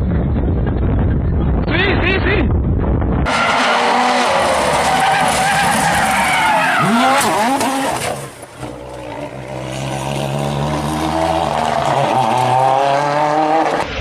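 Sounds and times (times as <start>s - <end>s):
rally car engine revving: 3.3s - 14.0s.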